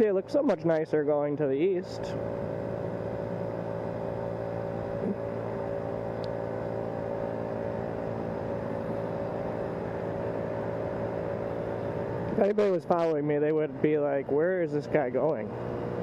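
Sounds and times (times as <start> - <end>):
vehicle engine and road drone: 0.0 - 16.0.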